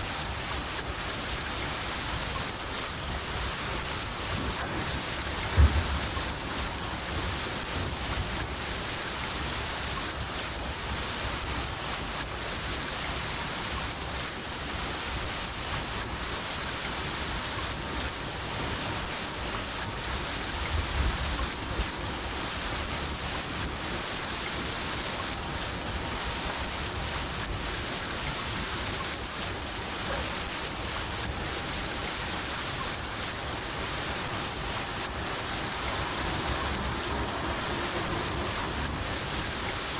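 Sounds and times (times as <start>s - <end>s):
cricket chirping: 0.0s - 8.3s, 8.9s - 12.9s, 13.9s - 39.9s
steady rain hiss: 0.0s - 39.9s
low thunder rumbles: 4.3s - 8.2s.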